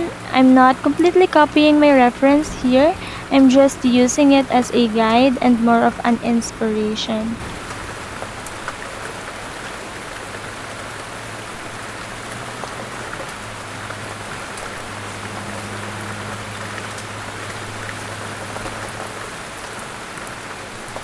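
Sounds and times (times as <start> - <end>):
faint low hum: 0.0 - 7.8
rain falling: 0.0 - 21.0.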